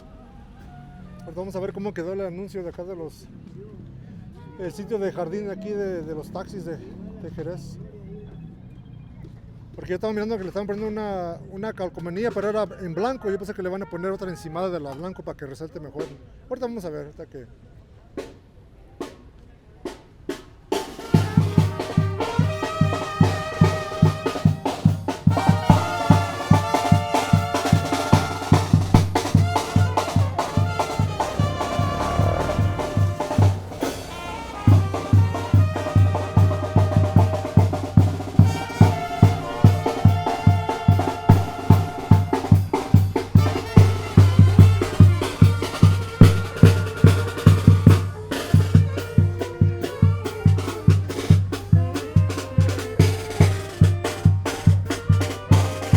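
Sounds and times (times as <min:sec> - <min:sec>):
brass band playing: 0:20.7 - 0:55.9
bass drum beat: 0:21.1 - 0:55.9.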